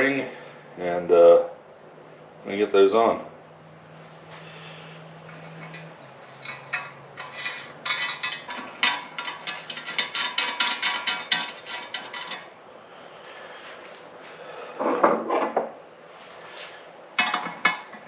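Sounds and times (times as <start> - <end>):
tools and metal parts clinking: 5.3 - 12.5, 17.2 - 18.0.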